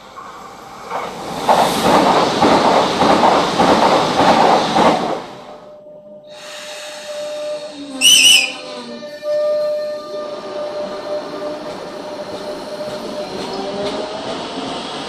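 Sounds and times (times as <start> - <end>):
train wheels rushing on rails: 0.0 - 5.6, 10.3 - 15.0.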